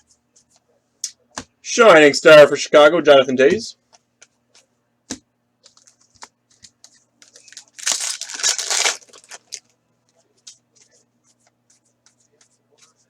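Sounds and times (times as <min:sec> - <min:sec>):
cards clicking and rustling: 0:05.6 - 0:09.6
card pack wrapper tearing: 0:07.5 - 0:09.6.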